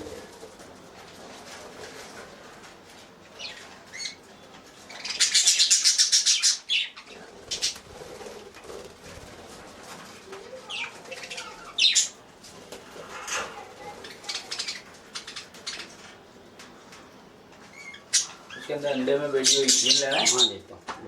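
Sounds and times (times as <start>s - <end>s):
budgerigars chirping: 3.4s - 4.2s, 4.9s - 7.8s, 10.7s - 12.2s, 14.0s - 16.1s, 17.7s - 20.6s
wing flapping: 7.3s - 11.7s.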